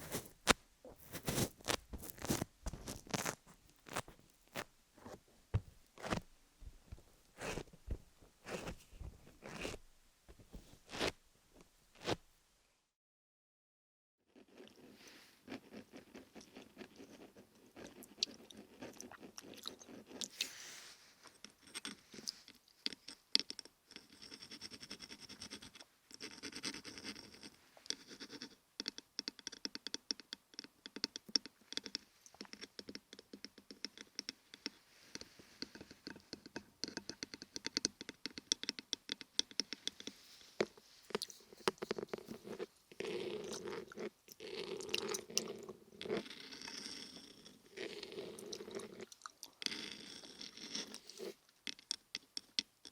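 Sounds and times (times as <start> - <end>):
scratching and crackling clicks: 0.0 - 12.2.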